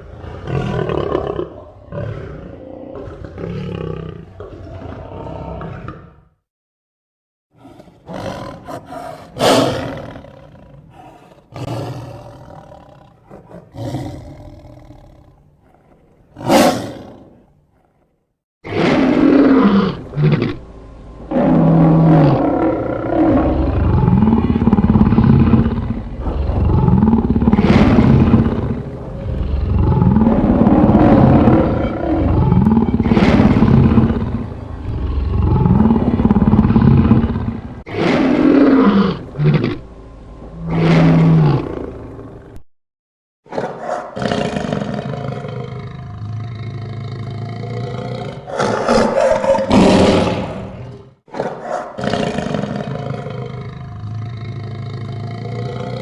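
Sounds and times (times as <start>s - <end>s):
deep layered roars: 0.0s - 6.2s, 18.6s - 42.6s, 44.2s - 51.2s, 52.0s - 56.0s
lion-like snarls and growls: 0.0s - 6.4s, 7.6s - 42.6s, 43.5s - 56.0s.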